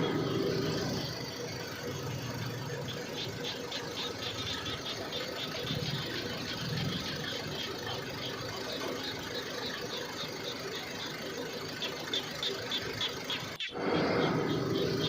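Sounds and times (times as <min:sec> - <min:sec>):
small engine idling with knock: 0:00.0 - 0:15.0.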